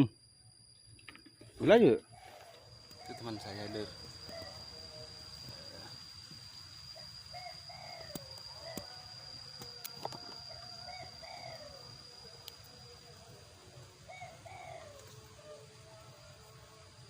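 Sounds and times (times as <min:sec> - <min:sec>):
high-pitched whine: 0:00.0 - 0:17.0
bird calling: 0:02.0 - 0:06.0.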